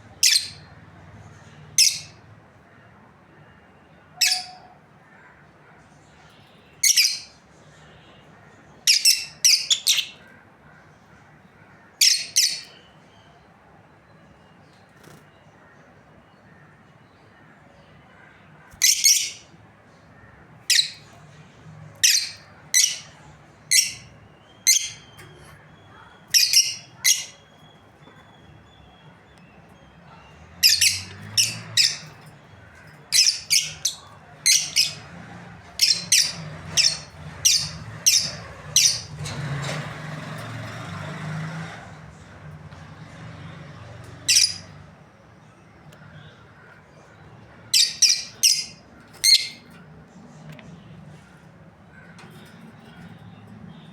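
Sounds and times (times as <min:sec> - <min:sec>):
lovebirds chirping: 0:06.0 - 0:10.4, 0:12.0 - 0:13.5, 0:16.4 - 0:19.6, 0:20.2 - 0:40.9, 0:43.0 - 0:53.9.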